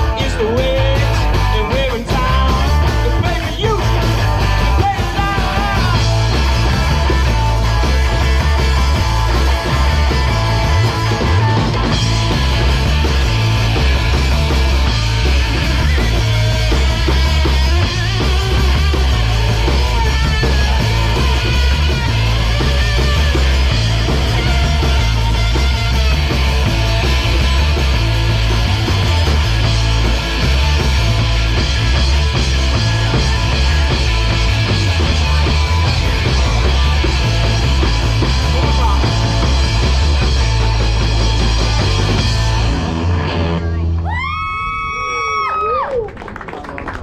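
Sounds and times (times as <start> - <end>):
pulsing bass: 0.0 - 44.3
drum kit: 0.0 - 44.8
distorted electric guitar: 0.0 - 45.2.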